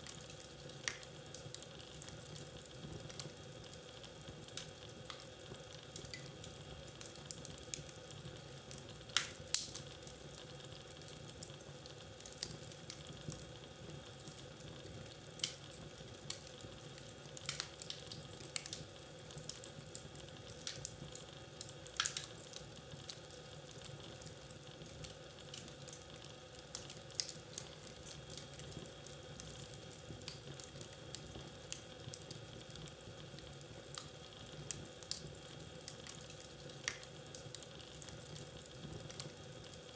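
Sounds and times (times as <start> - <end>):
soft steady hiss: 0.0 - 39.9
wood fire crackling: 0.0 - 39.9.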